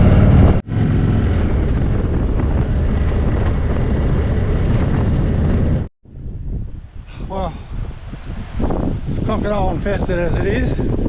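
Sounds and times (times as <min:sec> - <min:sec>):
motorcycle engine running: 0:00.0 - 0:05.9
wind on microphone: 0:00.0 - 0:11.0.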